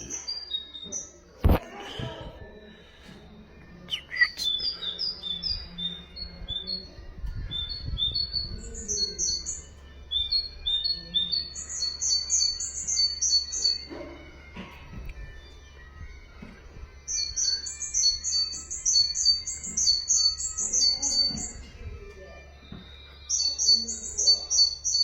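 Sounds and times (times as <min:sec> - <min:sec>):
higher sharper bird notes: 0:03.9 - 0:05.7.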